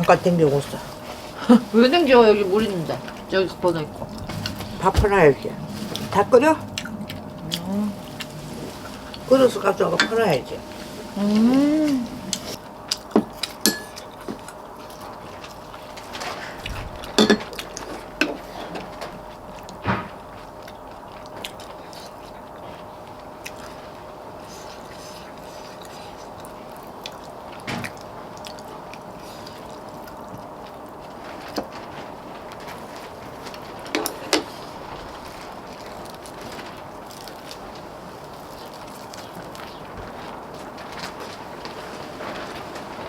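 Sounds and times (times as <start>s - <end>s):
faint steady hum: 0.0s - 43.0s
dishes and utensils clinking: 2.3s - 11.2s, 11.9s - 14.5s, 17.0s - 18.9s.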